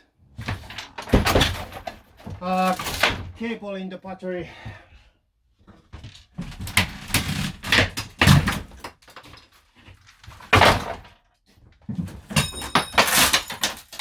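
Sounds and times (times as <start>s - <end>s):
loud knocks and thuds: 0.4s - 3.4s, 10.5s - 11.0s.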